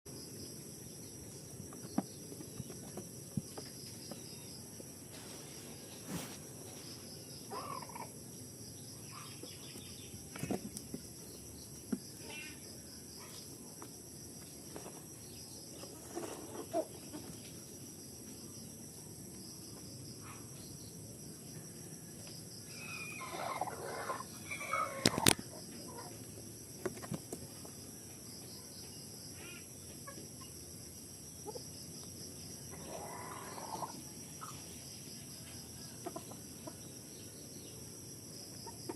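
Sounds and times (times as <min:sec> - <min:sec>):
steady background hiss: 0:00.1 - 0:38.9
farm animals clucking: 0:07.5 - 0:08.1, 0:15.8 - 0:17.4, 0:23.0 - 0:26.2, 0:31.4 - 0:31.7, 0:32.7 - 0:34.6, 0:36.0 - 0:36.9, 0:38.6 - 0:38.9.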